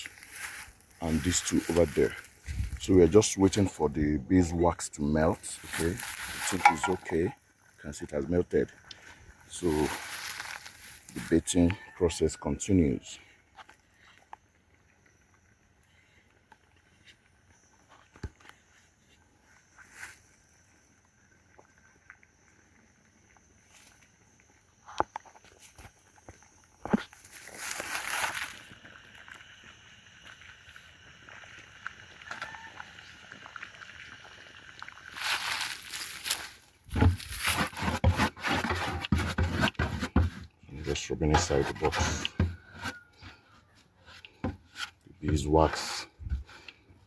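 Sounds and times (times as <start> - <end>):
faint outdoor background: 0.0 - 47.0
handling knocks and rustles: 5.5 - 7.3, 35.2 - 40.5, 41.2 - 43.4
wax rubbing and scraping on wood: 35.2 - 43.4.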